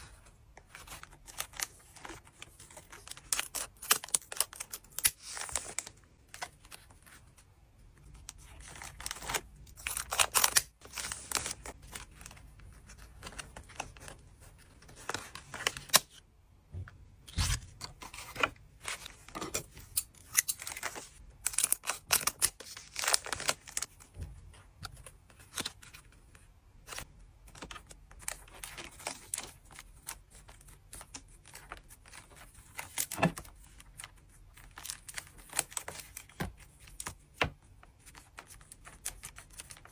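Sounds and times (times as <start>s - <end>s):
card packs tearing and rustling: 0.7s - 6.8s, 8.4s - 14.2s, 14.8s - 16.2s, 17.3s - 24.1s.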